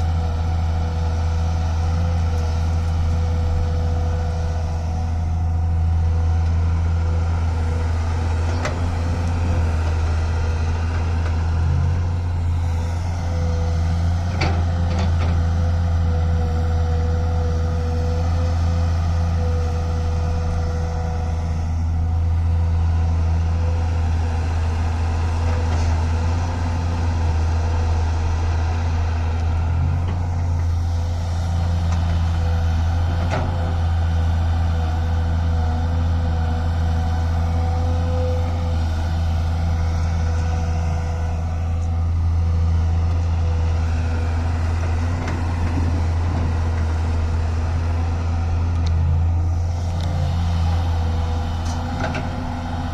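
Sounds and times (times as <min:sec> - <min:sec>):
excavator engine droning: 0:00.0 - 0:52.9.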